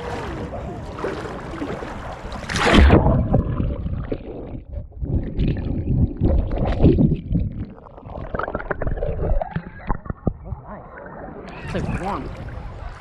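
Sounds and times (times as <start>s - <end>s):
muffled water surges: 0.0s - 13.0s
water splashing around camera: 0.0s - 13.0s
loud splash: 1.0s - 3.7s.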